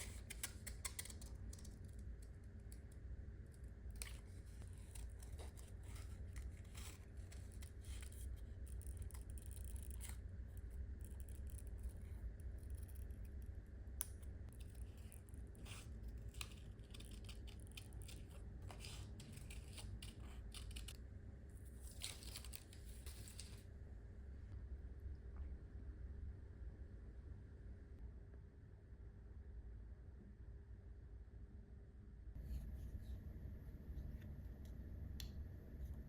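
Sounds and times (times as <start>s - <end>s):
scissors snipping paper: 0.0s - 2.9s, 3.9s - 10.2s, 14.0s - 21.0s
faint low hum: 0.0s - 36.0s.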